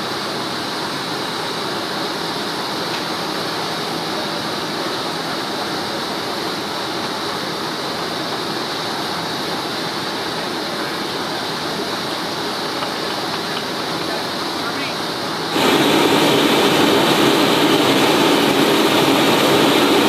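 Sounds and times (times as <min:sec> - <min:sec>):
jet engines rushing: 0:09.9 - 0:20.0.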